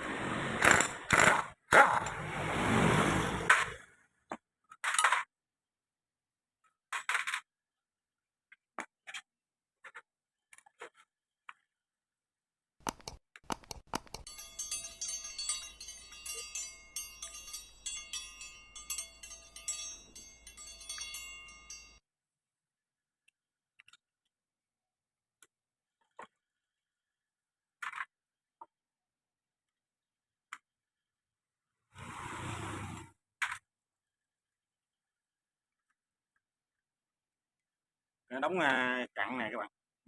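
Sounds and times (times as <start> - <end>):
rapid metallic clinking and jangling: 14.2 - 22.0.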